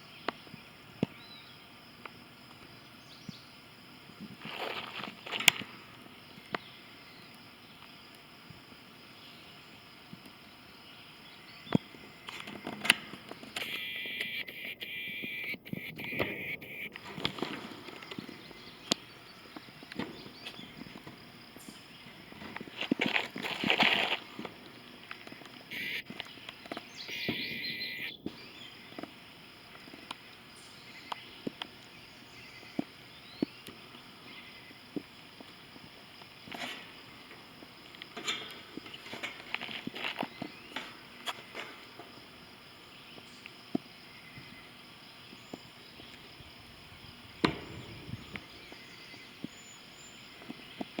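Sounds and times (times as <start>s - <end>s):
footsteps crunching on gravel: 4.2s - 6.1s, 17.0s - 29.2s, 34.9s - 43.6s
faint bird chirps: 10.4s - 17.0s, 25.7s - 29.0s.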